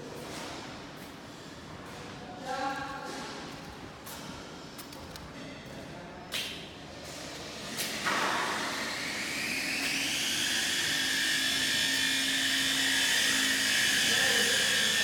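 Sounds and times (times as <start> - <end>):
electric motor whine: 8.4 - 15.0.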